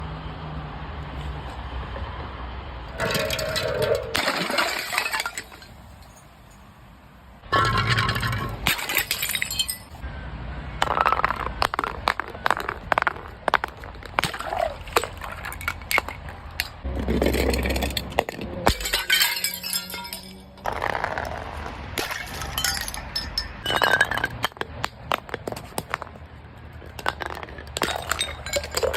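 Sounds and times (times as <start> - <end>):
glass bottles breaking: 3.0 - 6.2, 7.5 - 10.0, 10.8 - 21.3, 22.0 - 26.1, 26.8 - 28.9.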